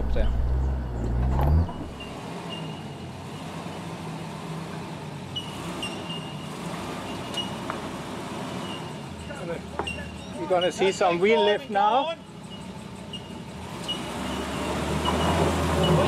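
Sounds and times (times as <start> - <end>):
loud engine drone: 0.0 - 2.4
quiet engine hum: 0.0 - 2.8.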